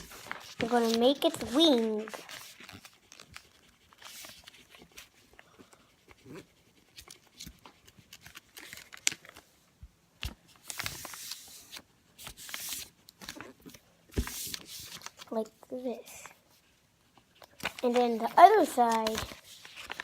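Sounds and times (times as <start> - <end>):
paper rustling and creasing: 0.0 - 9.6, 10.2 - 16.4, 17.2 - 20.0.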